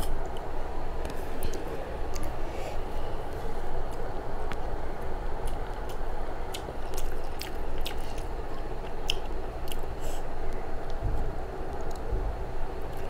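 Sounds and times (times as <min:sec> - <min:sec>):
person chewing: 0:05.4 - 0:10.2.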